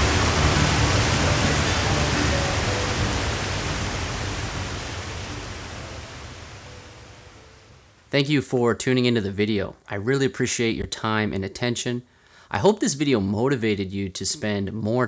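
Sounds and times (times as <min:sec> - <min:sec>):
waterfall roaring: 0:00.0 - 0:08.0
soft background music: 0:00.0 - 0:08.2.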